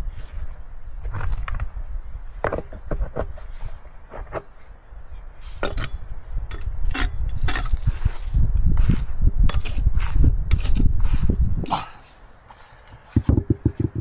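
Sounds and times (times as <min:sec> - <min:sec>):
hand tools knocking wood: 0:13.2 - 0:14.0.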